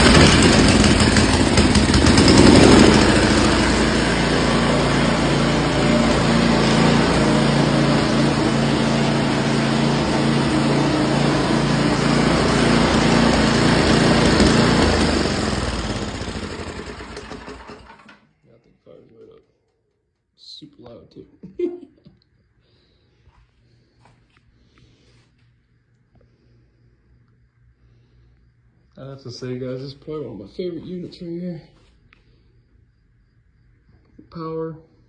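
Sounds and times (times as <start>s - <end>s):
snowblower engine running: 0.0s - 18.2s.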